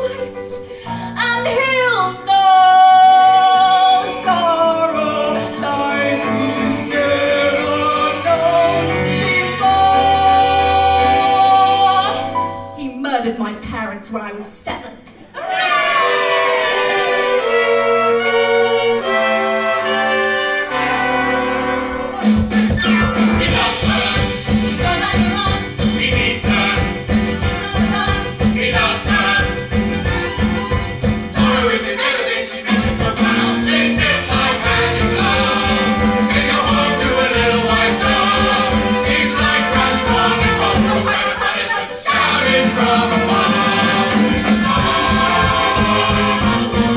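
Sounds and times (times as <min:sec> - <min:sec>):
voices singing together: 0:02.5 - 0:12.2, 0:15.4 - 0:20.1, 0:22.0 - 0:46.9
steady percussion beat: 0:04.1 - 0:11.3, 0:22.2 - 0:46.9.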